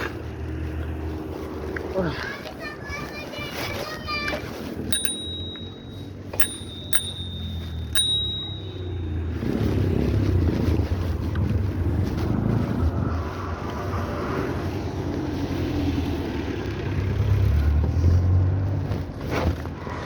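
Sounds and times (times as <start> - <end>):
bicycle bell ringing: 4.9 - 9.7.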